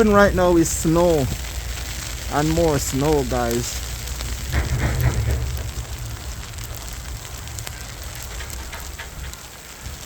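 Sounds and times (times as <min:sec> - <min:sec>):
steady crackling hiss: 0:00.0 - 0:10.0
low rumble: 0:03.1 - 0:09.5
faint ticks: 0:03.3 - 0:10.0.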